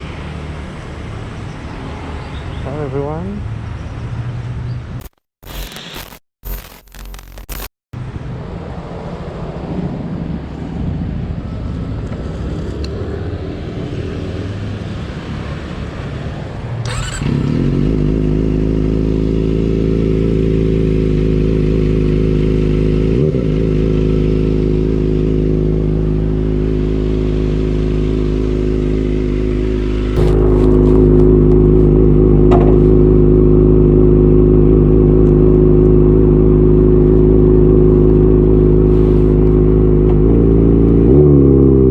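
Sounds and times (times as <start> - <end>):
motorcycle engine idling: 23.6 - 39.0.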